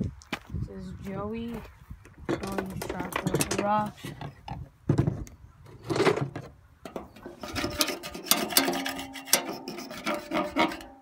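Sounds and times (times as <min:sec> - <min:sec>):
rocks scraping and clattering: 0:02.3 - 0:11.0.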